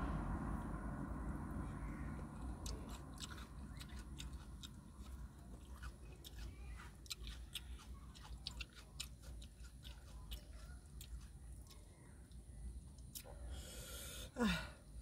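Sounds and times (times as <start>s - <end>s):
person chewing food: 2.4s - 13.5s.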